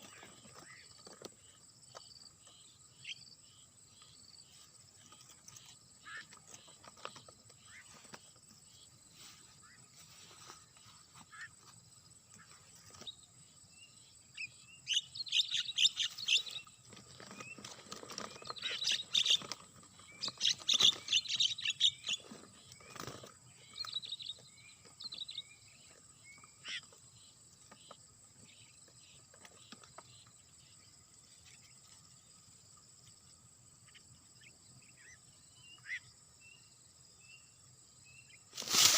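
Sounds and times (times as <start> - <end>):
birds chirping and calling: 0.0 - 32.0, 33.8 - 36.6.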